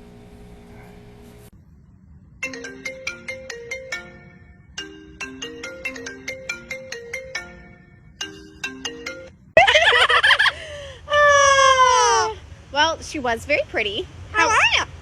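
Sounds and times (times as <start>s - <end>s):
marimba phone ringtone: 2.4s - 9.5s.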